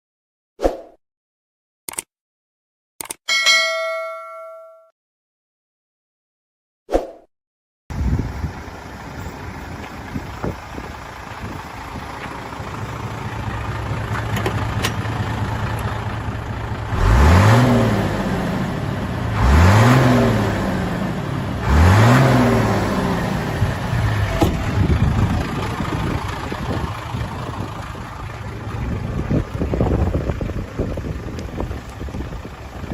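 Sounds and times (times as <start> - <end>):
diesel truck engine idling and revving: 7.9 - 32.9.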